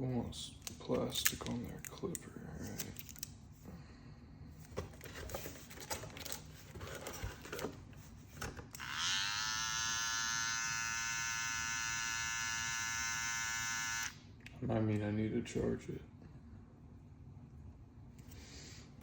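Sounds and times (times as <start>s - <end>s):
hair clipper whine: 8.8s - 14.2s.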